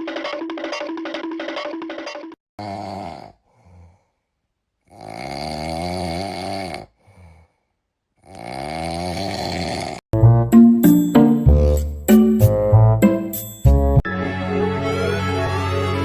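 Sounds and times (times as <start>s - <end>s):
snoring: 2.6s - 4.2s, 4.8s - 7.6s, 8.2s - 10.0s.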